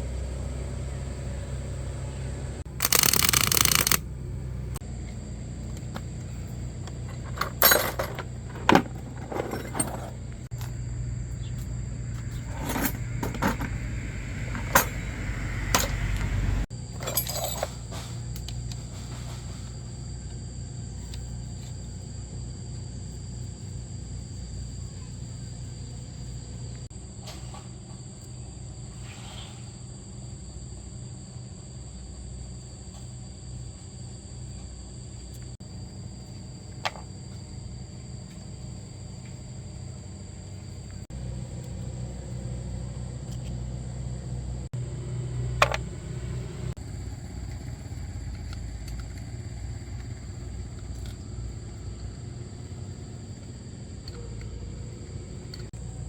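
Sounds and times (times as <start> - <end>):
steady low hum: 0.0 - 27.0
metal tools clinking: 6.9 - 10.8, 12.2 - 13.8, 14.5 - 15.0, 17.0 - 18.2.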